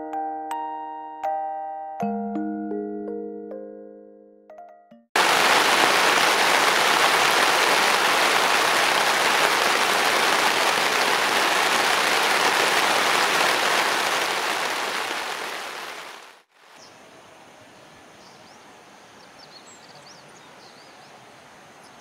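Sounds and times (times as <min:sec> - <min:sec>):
steady rain falling: 0:05.2 - 0:16.8.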